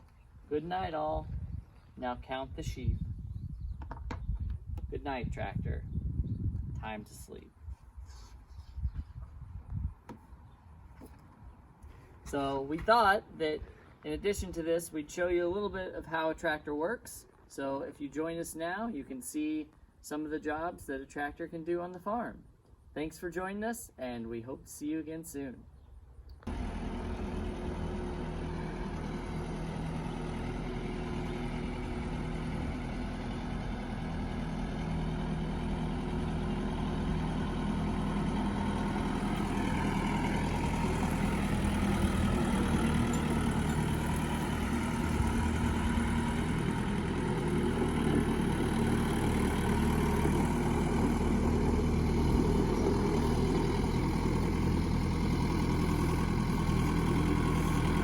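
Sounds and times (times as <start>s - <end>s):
tractor engine running: 26.4s - 58.0s.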